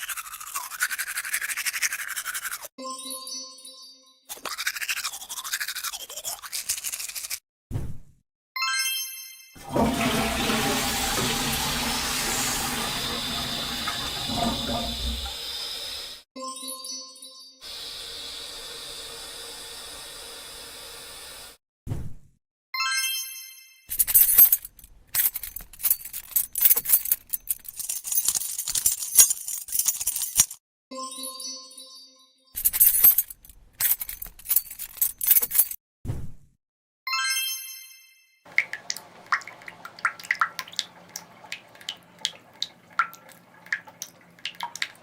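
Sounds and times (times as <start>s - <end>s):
toilet flushing: 9.6s - 16.2s, 17.7s - 21.6s, 38.5s - 45.0s
small hard objects clinking: 24.0s - 30.6s.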